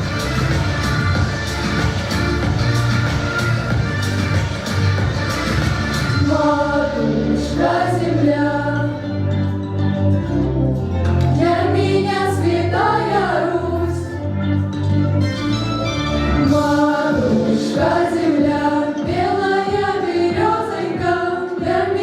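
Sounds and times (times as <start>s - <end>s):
vocal ensemble singing: 5.0s - 14.7s, 16.3s - 22.0s.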